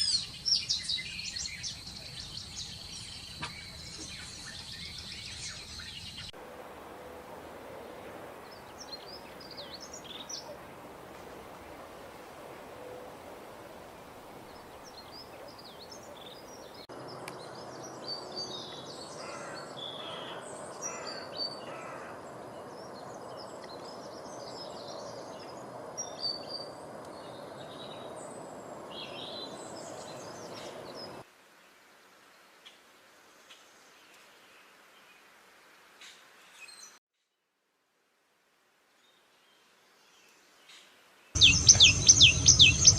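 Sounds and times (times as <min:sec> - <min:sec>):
small birds chirping: 0:00.0 - 0:06.4, 0:14.4 - 0:31.2, 0:40.2 - 0:42.9
steady background hiss: 0:00.1 - 0:16.8.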